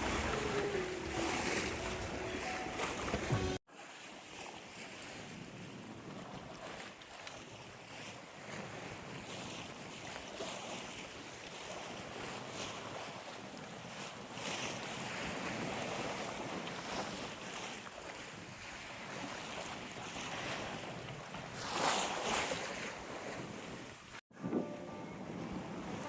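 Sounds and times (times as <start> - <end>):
water rushing around hull: 0.0 - 26.0
wave splash: 0.0 - 26.0
wind buffeting microphone: 14.6 - 26.0.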